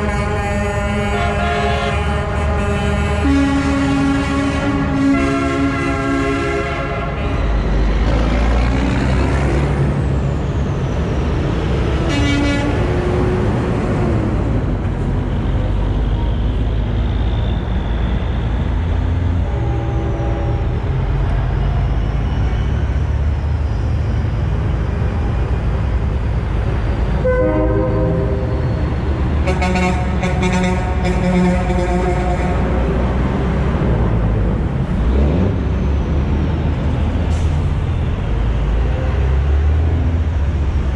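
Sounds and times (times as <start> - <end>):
truck air horn blasts: 0.0 - 7.7, 12.0 - 13.0, 19.4 - 20.8, 27.2 - 28.6, 29.4 - 33.0
diesel trucks rolling past: 0.0 - 40.9.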